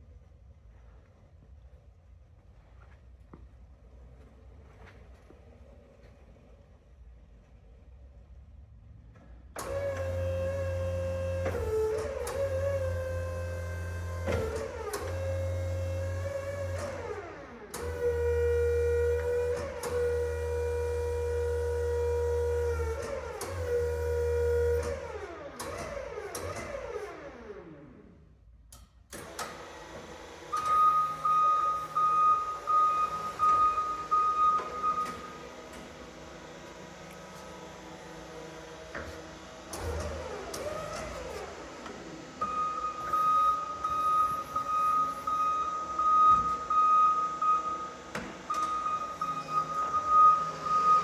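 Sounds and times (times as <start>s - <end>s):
electric forklift motor whining: 9.6s - 28.2s, 29.2s - 51.0s
click: 28.7s - 29.5s
forklift warning beeper: 30.5s - 35.5s, 42.4s - 51.0s.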